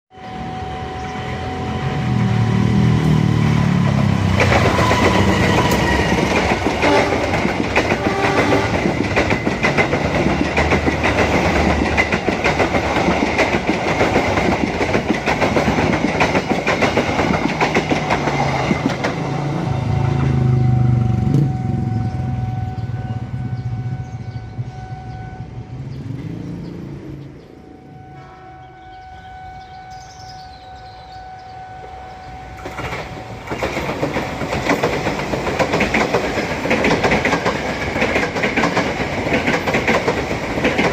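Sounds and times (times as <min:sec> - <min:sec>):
heavy low train rumble: 0:00.1 - 0:40.9
train wheels clattering over rails: 0:02.7 - 0:22.0, 0:32.6 - 0:40.9.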